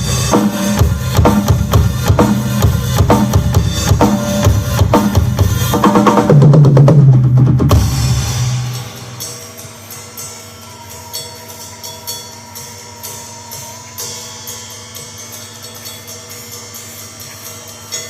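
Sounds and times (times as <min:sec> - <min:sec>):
drum fill: 0:00.0 - 0:09.2.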